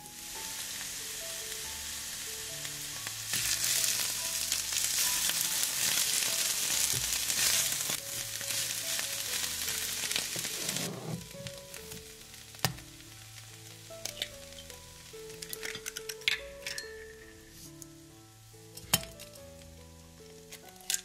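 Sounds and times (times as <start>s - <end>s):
cabbage sizzling in frying pan: 0.0s - 21.0s
spatulas tossing food: 3.3s - 12.0s.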